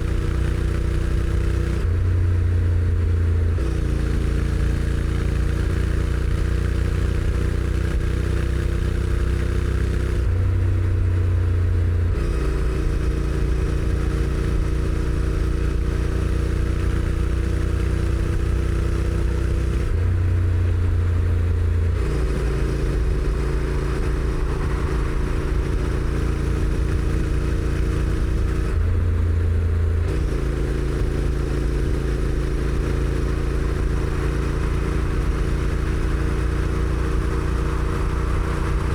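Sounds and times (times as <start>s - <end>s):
motorcycle engine running: 0.0s - 38.9s
wind rush: 22.8s - 28.8s, 33.8s - 38.9s.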